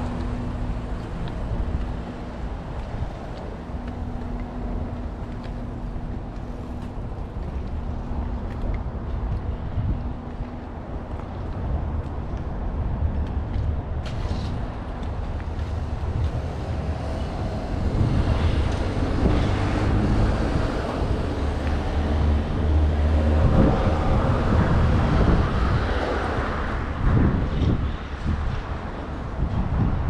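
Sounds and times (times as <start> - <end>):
motor vehicle passing: 14.1 - 28.4.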